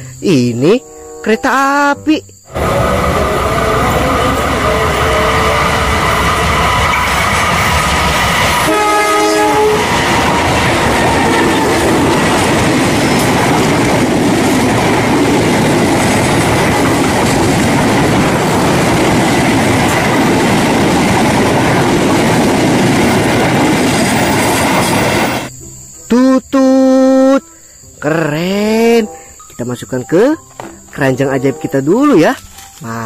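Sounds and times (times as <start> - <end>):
locomotive horn: 2.5 - 11.9
train carriages rumbling past: 2.5 - 25.5.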